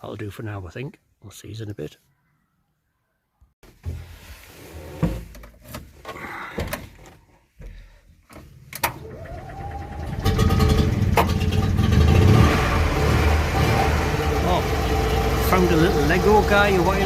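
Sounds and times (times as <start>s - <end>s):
clunks and clicks: 8.3s - 11.7s
engine cranking whine: 8.8s - 17.0s
engine running loudly: 9.6s - 17.0s.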